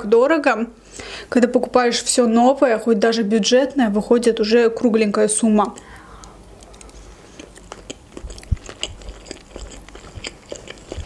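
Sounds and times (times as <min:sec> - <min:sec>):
chewing pasta: 0:05.6 - 0:11.0
wet mouth clicks and smacks: 0:05.6 - 0:11.0.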